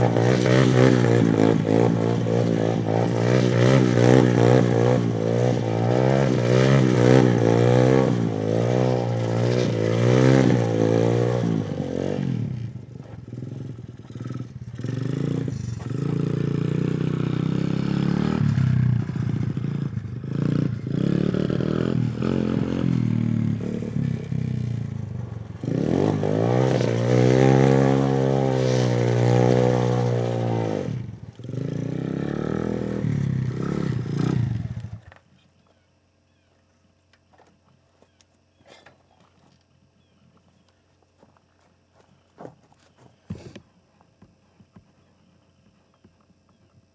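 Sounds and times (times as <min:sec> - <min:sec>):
dirt bike engine revving: 0:00.0 - 0:35.2.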